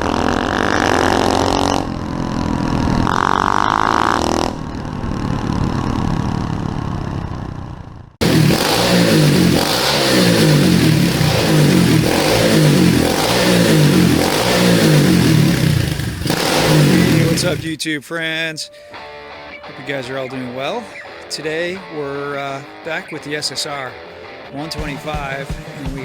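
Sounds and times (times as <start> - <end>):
engine revving: 0.0 - 7.3, 8.2 - 17.7
pit bike engine running: 0.0 - 17.7, 24.6 - 26.0.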